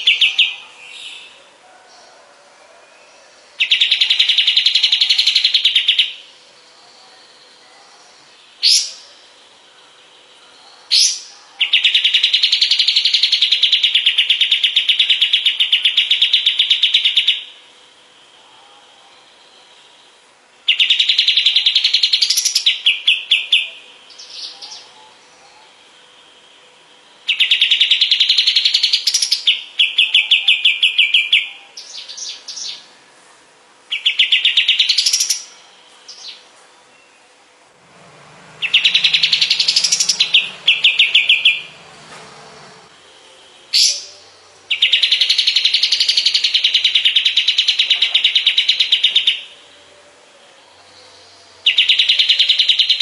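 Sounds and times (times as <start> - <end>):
bird singing trills: 0.0 - 1.5, 3.0 - 33.0, 33.9 - 37.4, 38.3 - 53.0.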